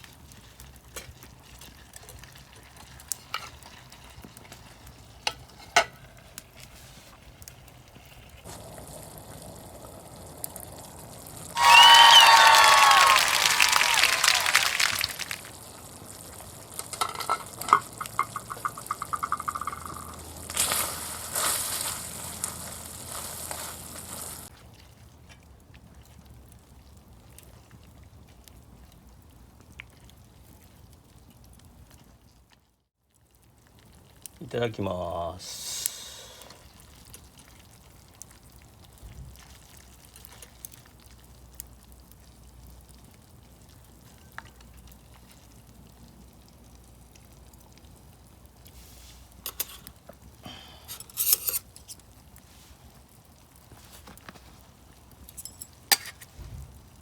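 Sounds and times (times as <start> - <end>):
food sizzling in frying pan: 0.0 - 24.5
wood fire crackling: 0.0 - 57.0.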